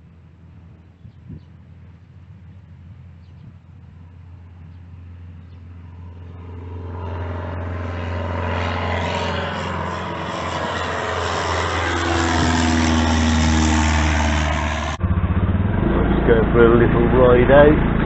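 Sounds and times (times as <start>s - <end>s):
vehicle engine approaching: 0.0s - 18.0s.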